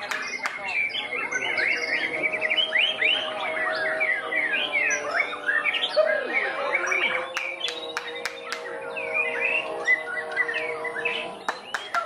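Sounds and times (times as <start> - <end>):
bird singing whistled notes: 0.0 - 12.0
faint hum: 0.0 - 12.0.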